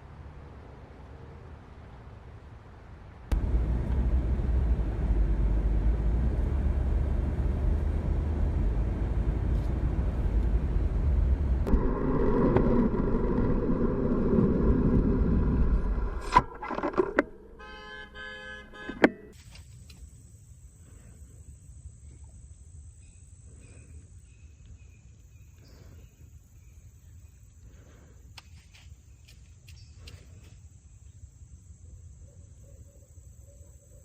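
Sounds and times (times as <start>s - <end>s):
car road rumble: 0.0s - 19.4s
car horn held: 17.4s - 19.4s.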